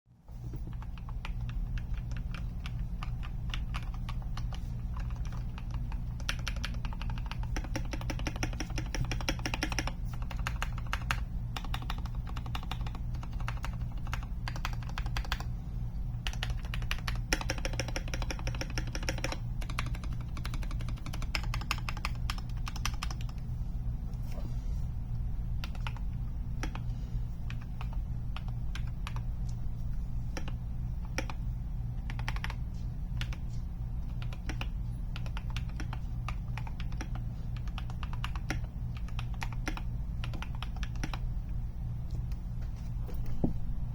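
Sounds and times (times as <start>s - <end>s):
typing on mechanical keyboard: 0.6s - 15.5s, 16.2s - 23.4s, 25.6s - 26.8s, 27.5s - 29.2s, 30.4s - 31.4s, 32.1s - 32.6s, 34.0s - 41.3s.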